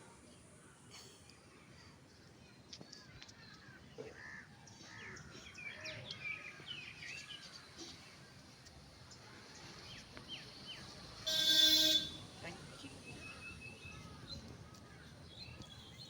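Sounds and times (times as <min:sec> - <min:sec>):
vehicle horn: 0:11.2 - 0:12.3.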